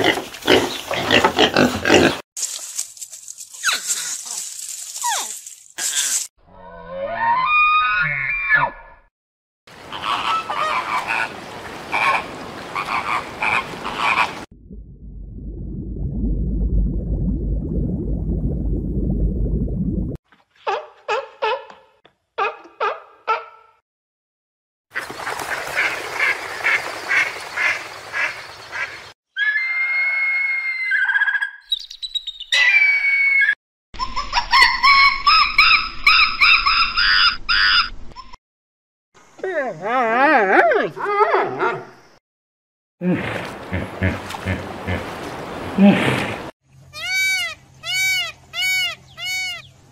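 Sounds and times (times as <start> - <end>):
bird calls and squawks: 9.9 - 11.3, 47.0 - 49.8
low rumbling noise: 14.5 - 20.2.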